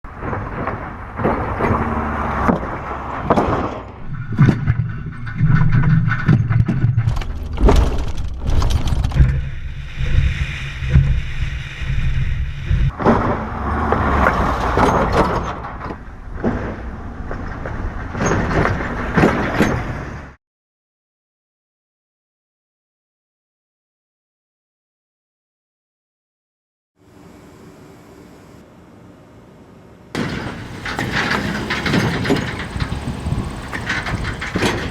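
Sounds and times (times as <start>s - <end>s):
sharp knocks and rattles: 0.1s - 9.5s, 30.2s - 34.9s
pickup truck engine rumbling: 0.2s - 5.3s, 30.2s - 34.9s.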